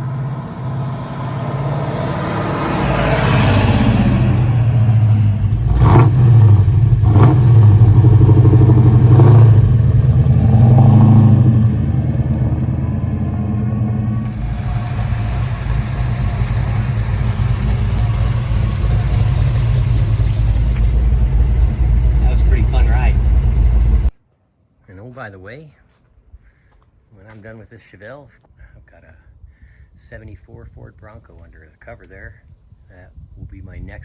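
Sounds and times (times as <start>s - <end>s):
car engine running: 0.0s - 24.2s.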